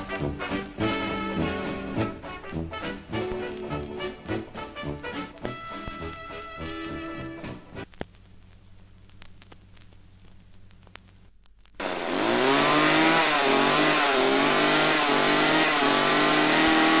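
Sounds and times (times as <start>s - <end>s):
crackling clicks: 0.1s - 0.9s, 2.3s - 12.2s
faint hum: 5.5s - 11.8s
chainsaw revving: 11.8s - 17.0s.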